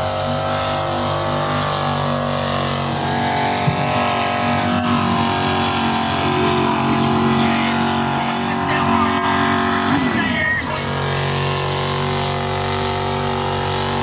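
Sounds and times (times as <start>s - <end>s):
truck engine running hard: 0.0s - 14.0s.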